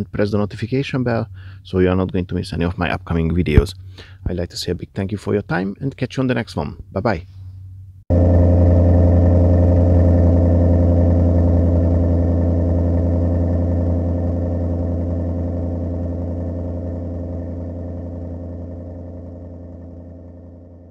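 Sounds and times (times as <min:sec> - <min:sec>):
loud low droning hum: 0:08.0 - 0:20.9.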